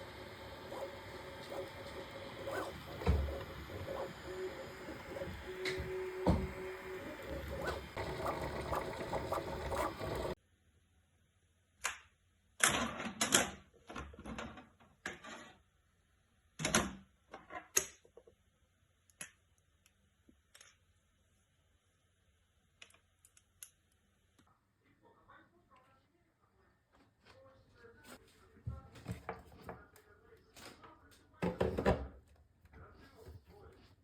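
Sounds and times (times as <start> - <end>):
busy mechanical sound: 0.0 - 10.4.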